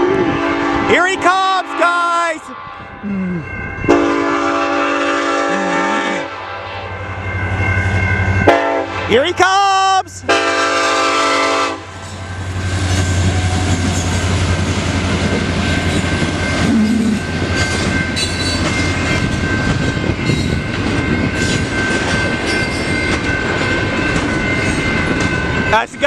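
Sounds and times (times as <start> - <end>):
crossing signal bells ringing: 1.4 - 26.0
freight cars rolling on rails: 6.9 - 26.0
train wheels clacking: 10.4 - 26.0.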